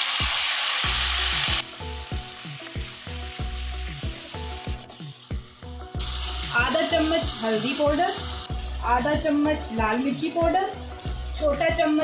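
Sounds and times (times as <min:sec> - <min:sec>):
onions sizzling in hot oil: 0:00.0 - 0:12.0
background music with low beat: 0:00.2 - 0:12.0.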